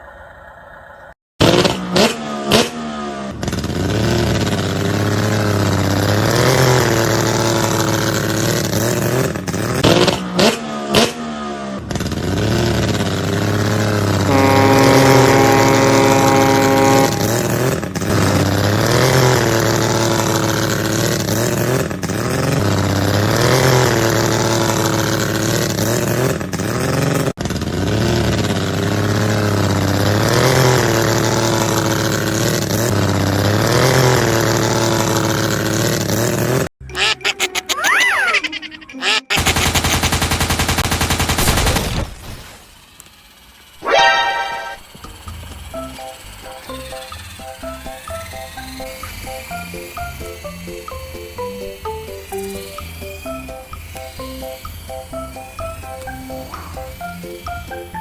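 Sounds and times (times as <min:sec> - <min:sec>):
vehicle engine revving: 0:01.4 - 0:36.7, 0:42.8 - 0:58.0
steady pitched tone: 0:43.8 - 0:45.1, 0:45.7 - 0:58.0.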